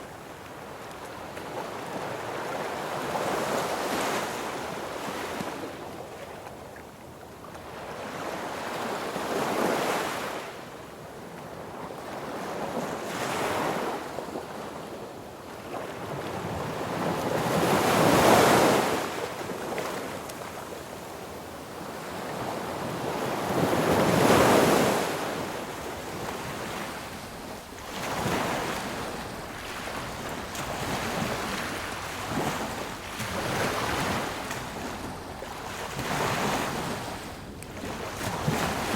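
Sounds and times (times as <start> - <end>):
sea waves breaking on beach: 15.6 - 38.9.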